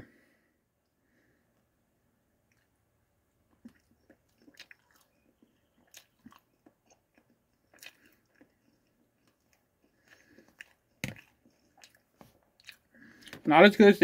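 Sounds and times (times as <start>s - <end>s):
chewing with wet mouth clicks: 2.5s - 2.7s, 3.5s - 13.4s.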